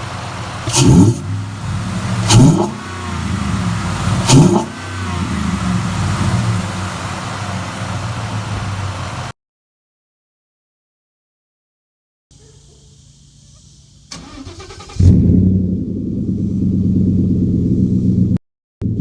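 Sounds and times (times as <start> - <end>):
rush of intake air: 0.0 - 8.4
car engine idling: 0.0 - 9.3, 12.5 - 19.0
engine revving: 0.0 - 9.3, 14.1 - 19.0.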